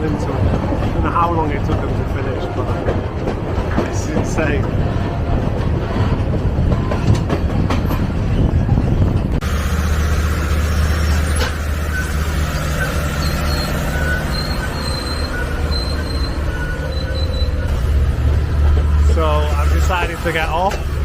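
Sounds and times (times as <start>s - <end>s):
train rumbling on rails: 0.0s - 21.0s
high-pitched squeals: 9.9s - 18.5s.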